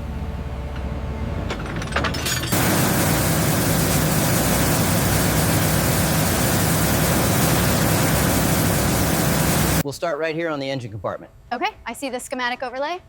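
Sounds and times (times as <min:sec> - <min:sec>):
diesel engine droning: 0:00.0 - 0:09.8
loud even hiss: 0:02.5 - 0:09.8.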